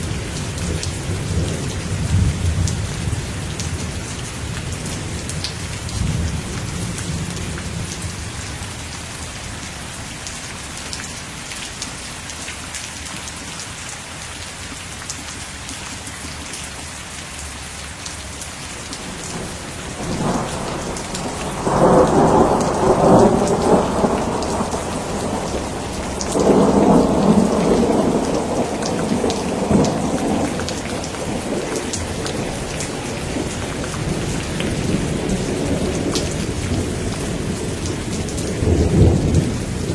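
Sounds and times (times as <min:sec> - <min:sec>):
steady rain: 0:00.0 - 0:39.9
thunder rolling: 0:19.0 - 0:39.9.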